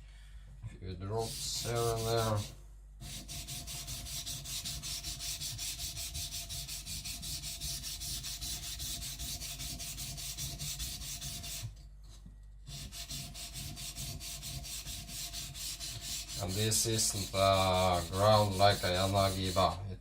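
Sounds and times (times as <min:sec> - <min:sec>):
blade scraping on whetstone: 0:12.7 - 0:19.8.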